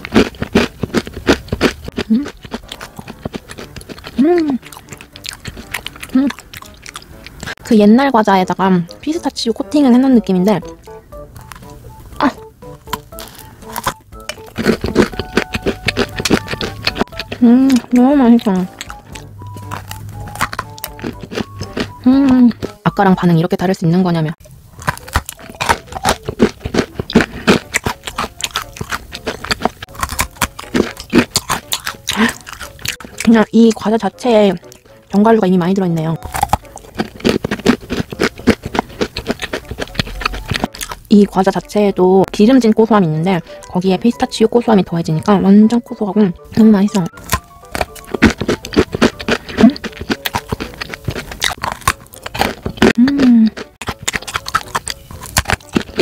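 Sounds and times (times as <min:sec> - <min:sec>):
person crunching snack bar: 0:00.0 - 0:07.6, 0:10.6 - 0:22.8, 0:24.7 - 0:33.3, 0:36.2 - 0:41.1, 0:47.2 - 0:56.0
person humming: 0:02.0 - 0:02.3, 0:04.2 - 0:04.7, 0:17.3 - 0:18.8, 0:22.0 - 0:22.6, 0:53.0 - 0:53.6.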